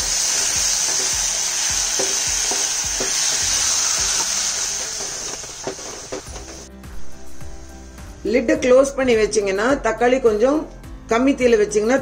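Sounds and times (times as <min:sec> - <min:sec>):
masala sizzling in hot oil: 0:00.0 - 0:08.0.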